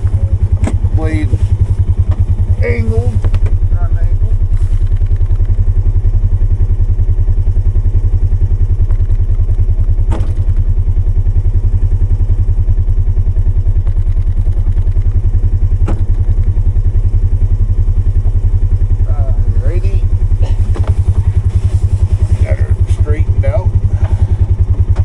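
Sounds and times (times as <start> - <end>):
engine running steadily: 0.0 - 25.0
sharp knocks: 10.1 - 10.6, 15.8 - 16.2.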